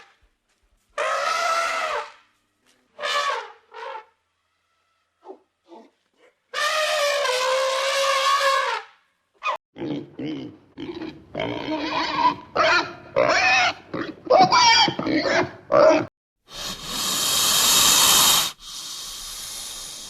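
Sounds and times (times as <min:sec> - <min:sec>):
animal squealing and grunting: 0:09.4 - 0:16.1.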